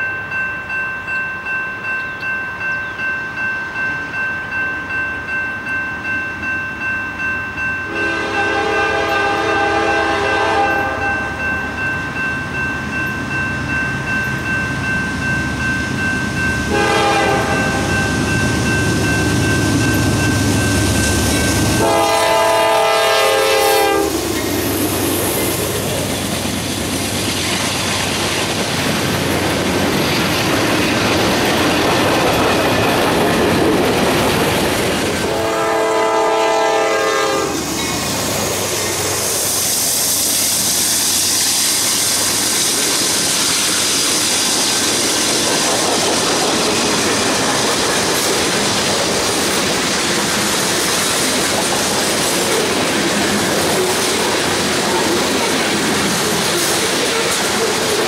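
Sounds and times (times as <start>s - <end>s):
freight train rumbling past: 0.0s - 58.0s
train horn: 7.9s - 11.4s, 16.7s - 18.0s, 21.8s - 24.2s, 35.2s - 37.7s
high hiss: 37.6s - 45.4s.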